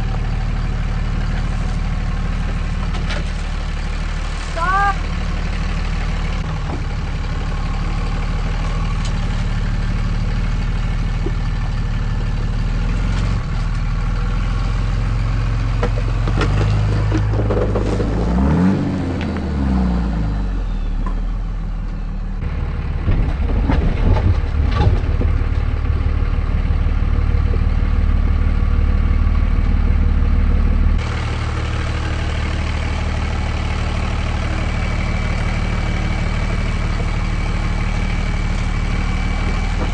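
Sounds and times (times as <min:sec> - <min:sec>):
diesel truck engine running: 0:00.0 - 0:39.9
truck rattling over rocks: 0:15.1 - 0:19.6, 0:22.4 - 0:28.1, 0:31.0 - 0:39.9.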